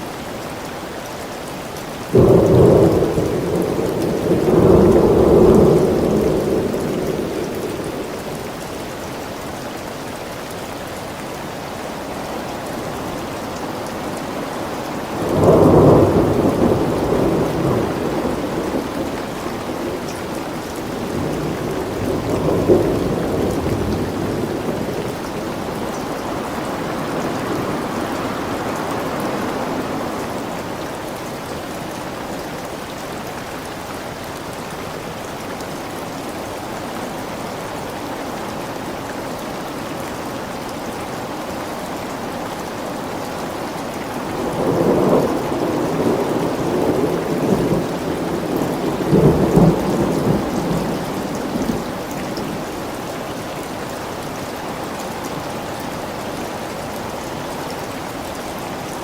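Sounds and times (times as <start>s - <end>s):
steady rain: 0.0s - 59.0s
thunder rumbling: 2.2s - 8.6s, 15.0s - 30.5s, 44.2s - 52.6s.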